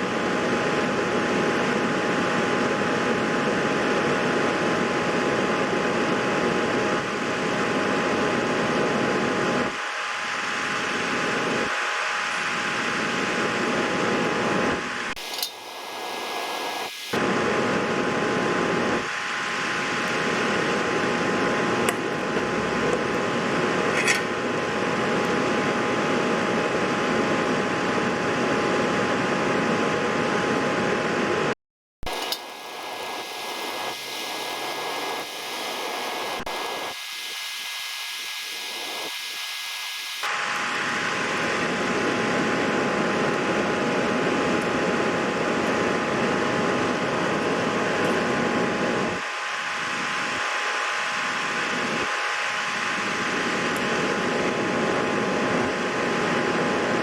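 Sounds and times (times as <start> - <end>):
steady whirring hiss: 15.2 - 17.2, 32.1 - 40.2.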